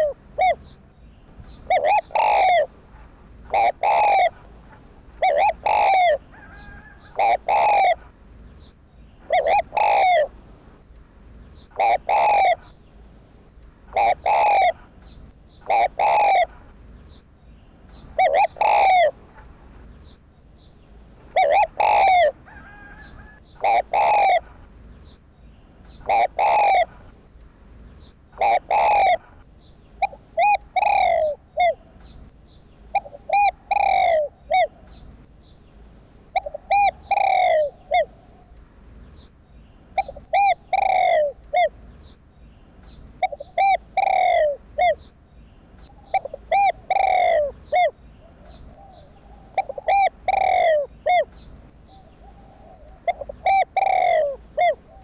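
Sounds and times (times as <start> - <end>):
dove cooing: 0.0 - 0.8, 1.5 - 8.1, 9.2 - 10.4, 11.6 - 12.8, 13.9 - 14.9, 15.6 - 16.7, 18.0 - 19.6, 21.2 - 24.6, 25.9 - 27.1, 28.4 - 32.1, 32.9 - 35.0, 36.3 - 38.5, 40.0 - 41.8, 43.2 - 45.1, 45.8 - 55.0.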